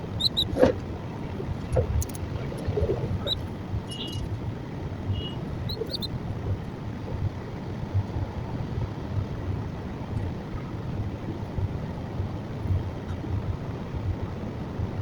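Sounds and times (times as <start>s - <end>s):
low background rumble: 0.0s - 15.0s
high bird chirps: 0.2s - 0.7s, 1.7s - 4.3s, 5.1s - 6.1s.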